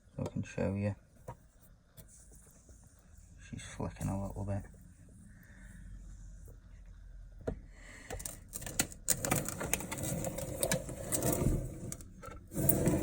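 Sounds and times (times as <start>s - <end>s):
rustling and scraping: 1.1s - 5.2s, 8.3s - 13.0s.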